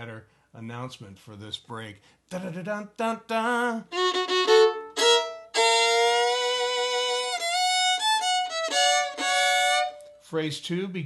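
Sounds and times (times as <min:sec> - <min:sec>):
fiddle playing: 0:03.6 - 0:10.2.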